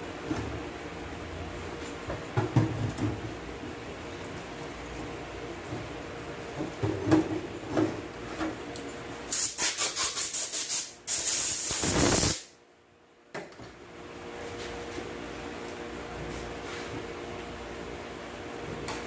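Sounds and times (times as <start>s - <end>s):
compressed air hissing from blow gun: 9.3s - 12.5s.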